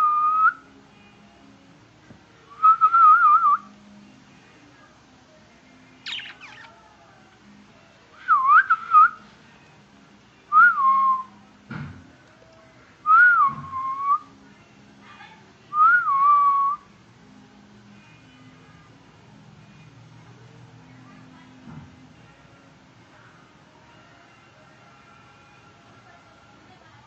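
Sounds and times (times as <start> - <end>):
parrot whistling: 6.0 - 6.7.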